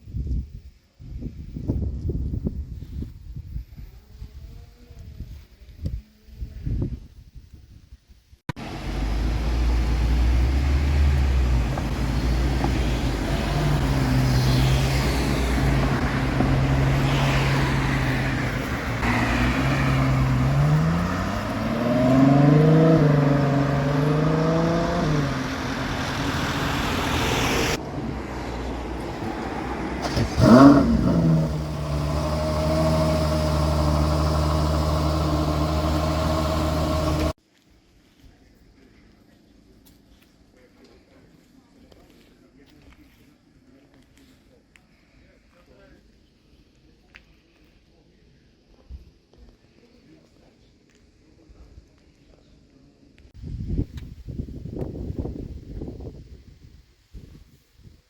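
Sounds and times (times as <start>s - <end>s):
sports car engine running: 8.6s - 17.1s, 18.6s - 27.6s, 30.0s - 37.3s
sharp engine rev: 8.6s - 27.8s, 29.6s - 37.4s.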